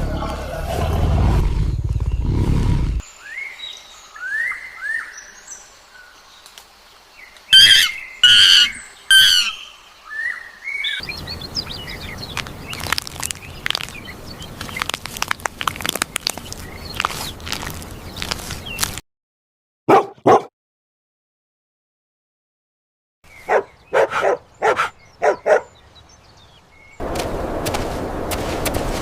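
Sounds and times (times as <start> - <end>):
big cat roaring: 0.0 - 3.0
birds chirping: 0.0 - 19.0, 23.2 - 28.9
loud harsh bird calls: 7.6 - 12.8
dense clicking and crackling: 12.3 - 19.0.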